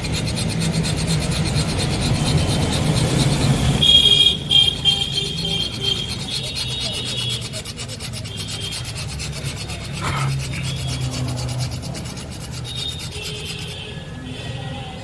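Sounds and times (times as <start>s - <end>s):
rapid rasping strokes: 0.0s - 14.1s.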